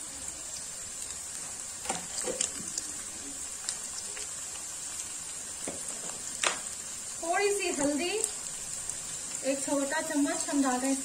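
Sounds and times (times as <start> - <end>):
onions sizzling in hot oil: 0.0 - 11.0
sharp crackles and clicks: 1.8 - 6.8.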